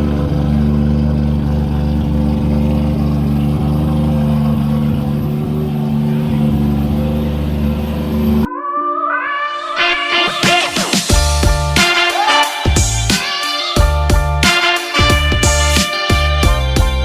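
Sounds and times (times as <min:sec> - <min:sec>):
rotary engine running: 0:00.0 - 0:08.5.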